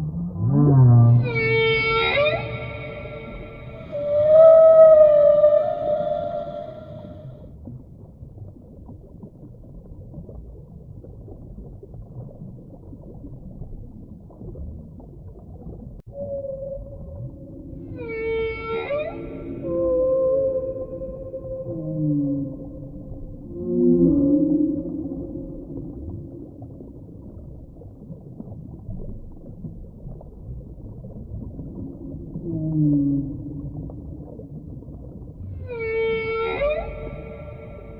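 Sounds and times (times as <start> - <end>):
whale call rising tone: 0.0 - 7.4, 16.1 - 27.0, 31.8 - 34.6, 35.4 - 37.9
low underwater rumble: 0.0 - 37.9.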